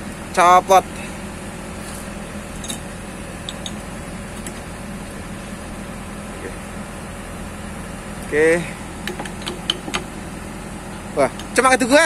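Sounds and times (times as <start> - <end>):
excavator diesel engine rumbling: 0.0 - 12.0.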